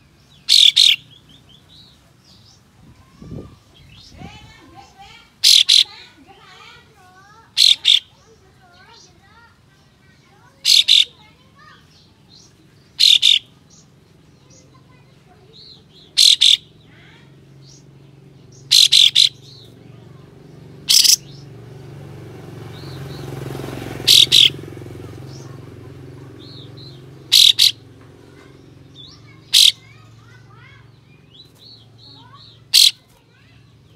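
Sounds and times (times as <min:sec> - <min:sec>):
soft bird chirps: 0:00.0 - 0:06.8, 0:07.6 - 0:21.6, 0:22.7 - 0:33.9
bird's sharp shot-like calls: 0:00.5 - 0:01.0, 0:10.7 - 0:11.1, 0:13.0 - 0:13.4, 0:16.2 - 0:16.7, 0:18.7 - 0:19.4, 0:20.9 - 0:21.4, 0:24.0 - 0:24.6, 0:27.3 - 0:27.8, 0:29.5 - 0:29.8, 0:32.7 - 0:33.0.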